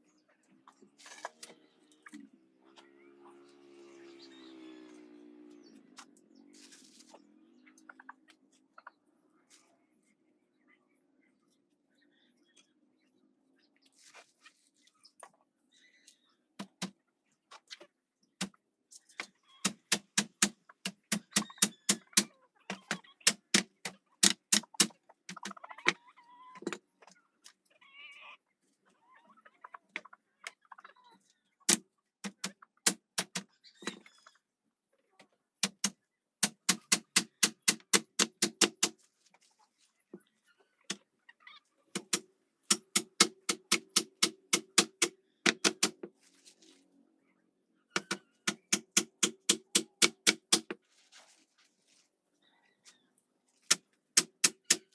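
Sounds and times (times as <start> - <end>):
hammer driving nails: 16.6 - 16.9, 19.6 - 25.5, 31.7 - 33.4, 35.6 - 39.0, 42.0 - 46.1, 48.0 - 50.8, 53.7 - 54.9.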